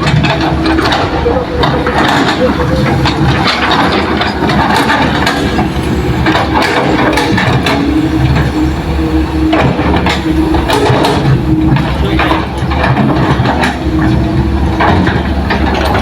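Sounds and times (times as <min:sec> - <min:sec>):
heavy diesel engines running: 0:00.0 - 0:16.0
machines clanking: 0:00.0 - 0:16.0.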